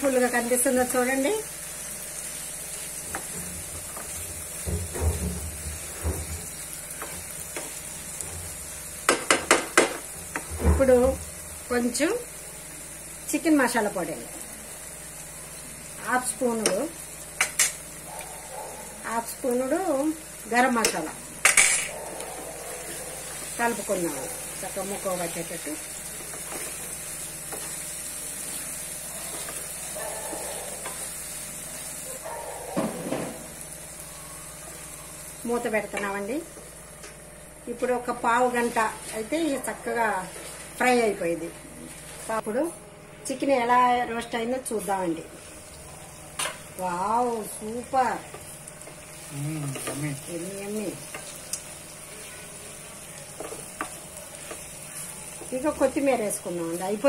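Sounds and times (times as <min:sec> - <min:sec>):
chicken sizzling in a pan: 0:00.0 - 0:42.7, 0:43.4 - 0:57.0
wooden spatula scraping and bumping pan: 0:03.1 - 0:11.1, 0:26.2 - 0:27.8
spatula scraping and tapping pan: 0:07.0 - 0:08.4.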